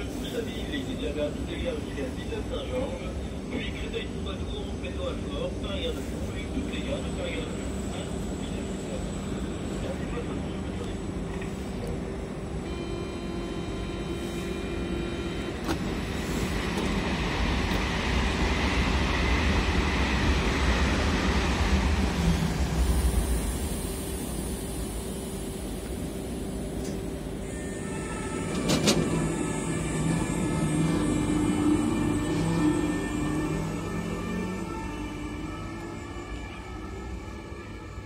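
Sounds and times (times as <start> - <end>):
electric train rolling: 12.6 - 38.0
traction motors whining: 22.9 - 38.0.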